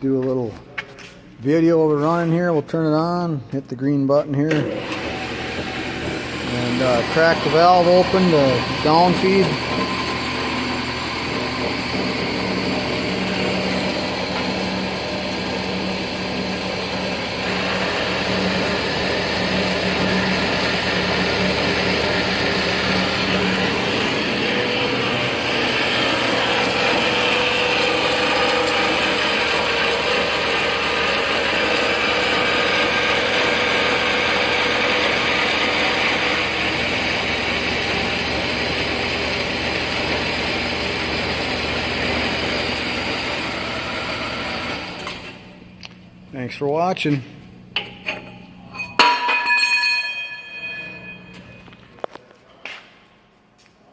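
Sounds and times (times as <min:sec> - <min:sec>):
band saw running: 0:04.5 - 0:45.6.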